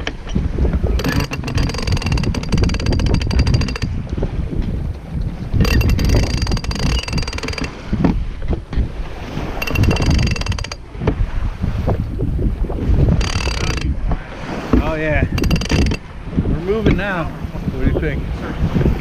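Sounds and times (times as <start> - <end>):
water noise: 0.0 - 19.0
wind buffeting microphone: 0.0 - 19.0
rapid ratcheting clicks: 1.0 - 3.9, 5.6 - 7.8, 9.6 - 10.8, 13.2 - 13.9, 15.4 - 16.0.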